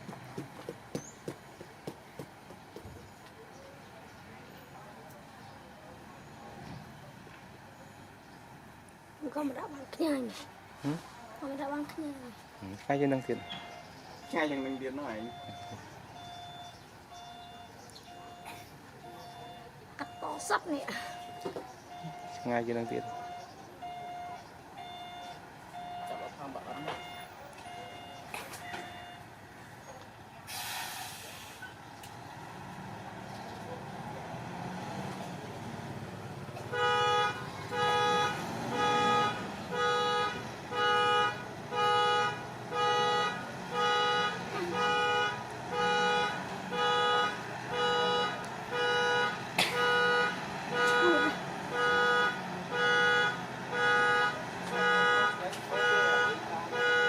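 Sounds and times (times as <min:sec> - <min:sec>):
back-up alarm beeping: 0:13.0 - 0:29.3
brief hiss: 0:30.5 - 0:31.8.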